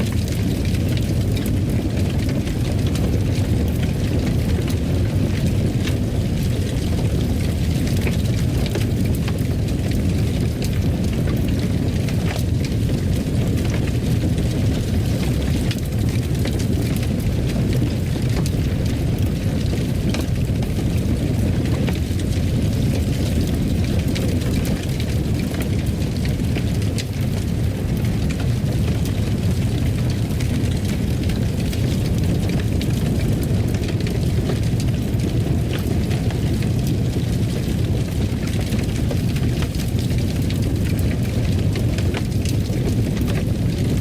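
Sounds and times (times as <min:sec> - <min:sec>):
fire crackling and popping: 0:00.0 - 0:44.0
fireplace fire rumbling: 0:00.0 - 0:44.0.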